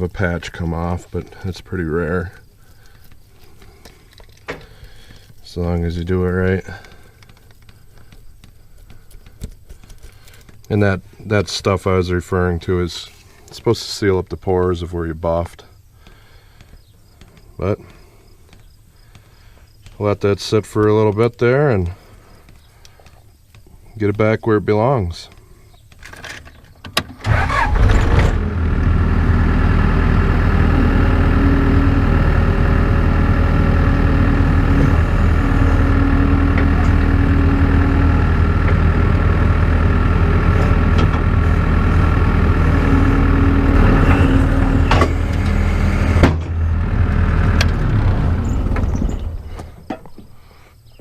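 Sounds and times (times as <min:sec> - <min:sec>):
engine running: 0:27.2 - 0:50.6.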